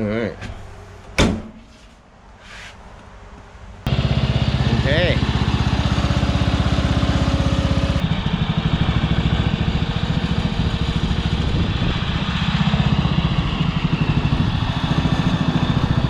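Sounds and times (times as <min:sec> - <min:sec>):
lawn mower engine running: 0:03.9 - 0:16.0.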